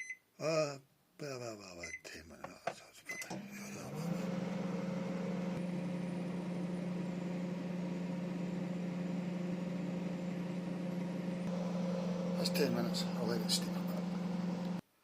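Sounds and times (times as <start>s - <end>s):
microwave oven humming: 3.3s - 14.8s.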